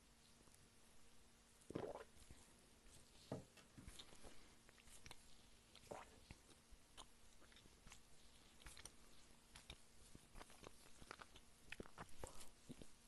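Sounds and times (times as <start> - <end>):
person chewing: 3.8 - 13.0.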